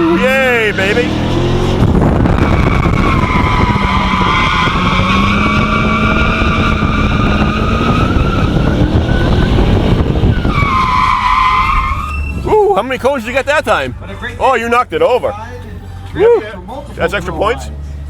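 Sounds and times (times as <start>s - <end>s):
car engine running: 0.0s - 10.9s
tires squealing: 0.0s - 15.1s.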